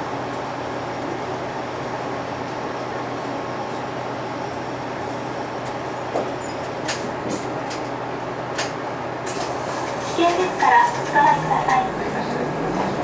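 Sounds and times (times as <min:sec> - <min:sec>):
bus diesel engine running: 0:09.1 - 0:13.0.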